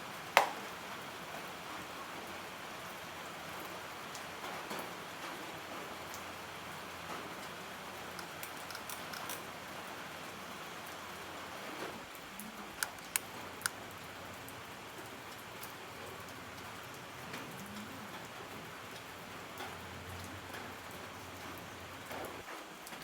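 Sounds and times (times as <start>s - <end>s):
sharp clicks: 8.2s - 9.4s, 12.4s - 13.8s.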